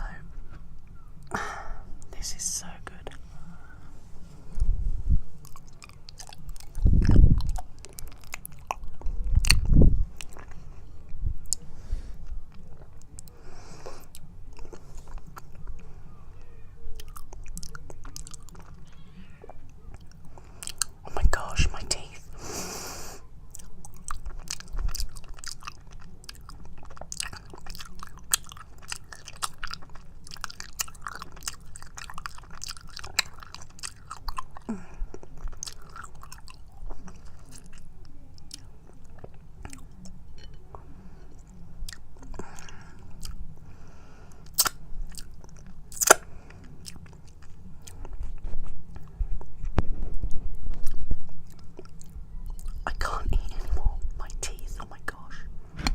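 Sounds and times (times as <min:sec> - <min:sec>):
wet chewing of honeycomb: 0:05.4 - 0:10.9, 0:23.5 - 0:43.4, 0:44.4 - 0:49.2.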